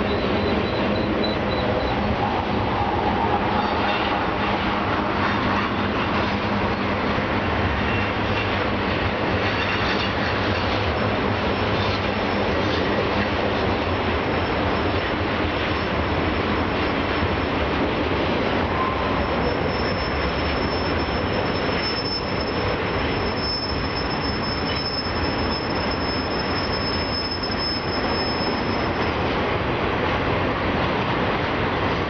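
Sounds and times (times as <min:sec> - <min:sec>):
high wheel squeal: 0:00.0 - 0:07.1, 0:18.7 - 0:29.3
train wheels rumbling on rail: 0:00.0 - 0:32.0.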